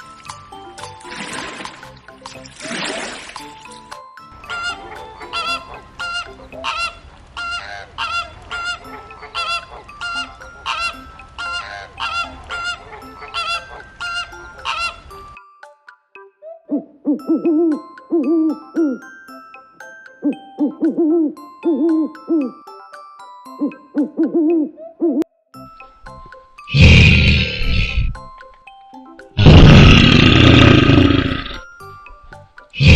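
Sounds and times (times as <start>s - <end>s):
light chiming music: 0.0s - 2.6s, 3.3s - 6.8s, 8.6s - 26.7s, 28.1s - 29.4s, 31.6s - 32.8s
loud bird honks: 4.5s - 15.0s.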